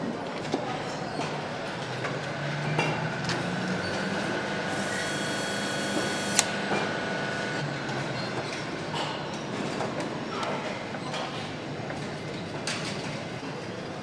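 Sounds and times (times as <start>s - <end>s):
workshop machinery humming: 0.0s - 10.2s
sharp tool clicks: 5.9s - 6.6s.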